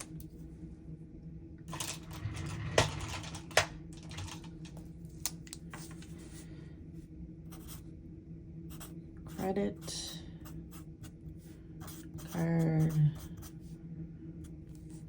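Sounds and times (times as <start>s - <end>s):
low steady hum: 0.0s - 15.0s
pen scratching on paper: 7.5s - 7.8s, 8.7s - 13.6s.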